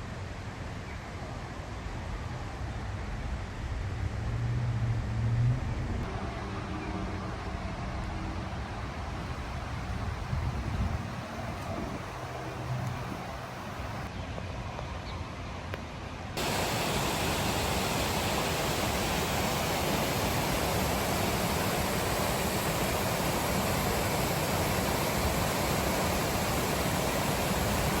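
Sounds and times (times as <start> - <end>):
waterfall rushing: 16.4 - 28.0.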